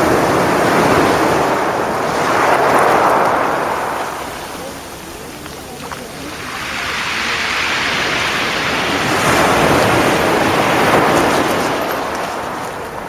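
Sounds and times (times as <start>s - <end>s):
waves breaking on shingle beach: 0.0s - 13.0s.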